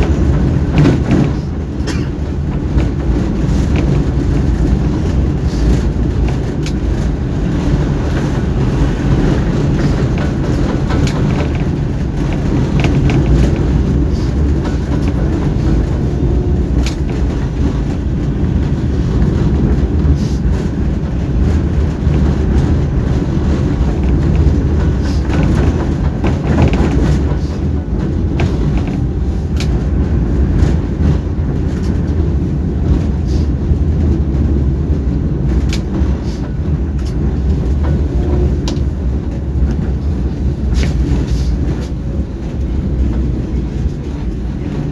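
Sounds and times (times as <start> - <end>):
clicks and rattles: 0.0 - 18.7
tram rumbling along rails: 0.0 - 44.9.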